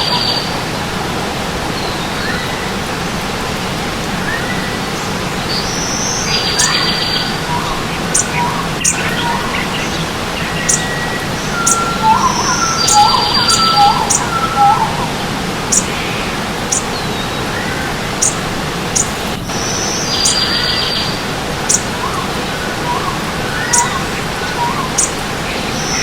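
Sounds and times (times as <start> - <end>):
stream water rushing: 0.0 - 26.0
buzzy high bird trill: 6.0 - 9.9, 10.5 - 21.1, 21.7 - 22.2, 22.9 - 25.2
thin high bird ticks: 6.5 - 6.8, 8.1 - 9.1, 16.7 - 17.0, 18.2 - 19.2, 21.6 - 21.9, 24.9 - 25.2
rising whistled bird notes: 10.5 - 18.4, 21.7 - 25.2.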